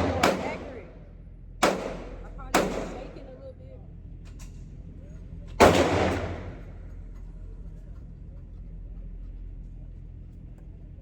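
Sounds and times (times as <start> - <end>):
echoing gunshot tail: 0.0 - 0.9, 1.6 - 3.2, 5.6 - 6.8
steady low hum: 0.0 - 11.0.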